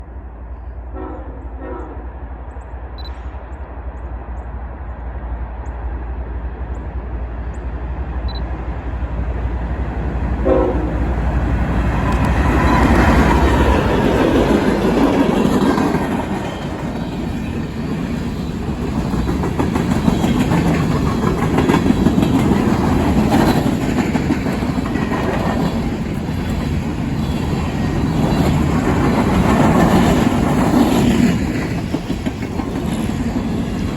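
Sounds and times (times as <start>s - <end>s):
locomotive rumble: 0.0s - 33.9s
train horn: 0.9s - 2.2s, 10.4s - 11.3s
train cars rattling over rail joints: 9.4s - 33.9s.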